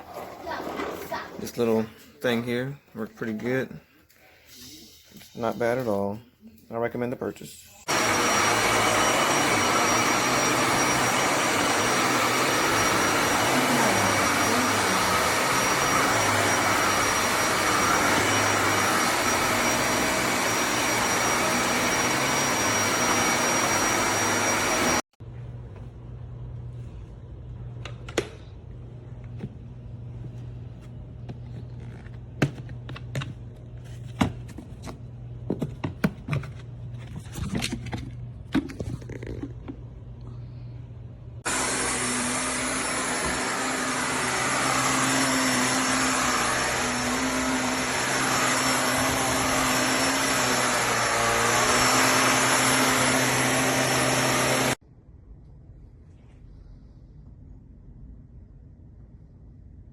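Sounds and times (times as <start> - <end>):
vacuum cleaner motor running: 7.8 - 25.1, 41.4 - 54.8.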